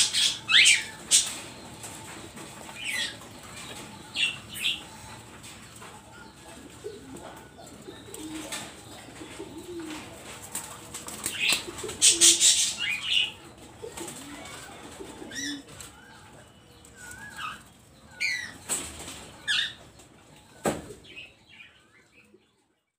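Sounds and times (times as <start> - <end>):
doves cooing: 0.0 - 21.4
wings flapping: 8.0 - 12.8, 13.8 - 16.0.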